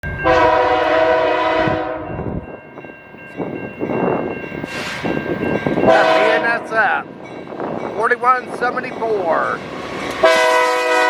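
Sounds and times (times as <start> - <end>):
train wheels on rails: 0.0 - 11.0
locomotive air horn chord: 0.2 - 2.2, 5.8 - 6.7, 10.2 - 11.0.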